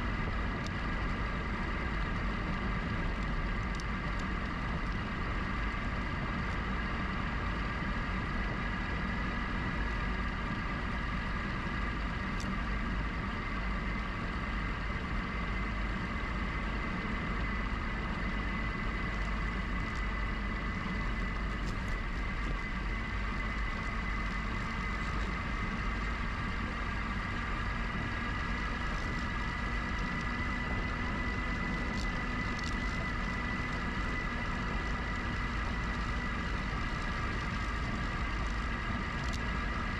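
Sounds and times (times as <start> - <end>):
electric bike motor whine: 0.0 - 39.9
wind and tyre rumble: 0.0 - 39.9
faint ticks: 3.2 - 5.1, 28.1 - 39.6.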